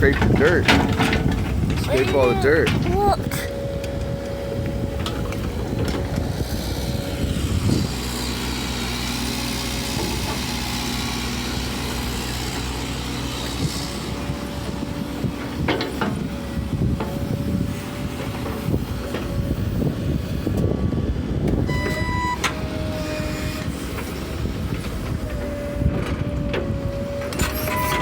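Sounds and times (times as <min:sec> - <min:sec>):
excavator engine whining: 0:00.1 - 0:28.0.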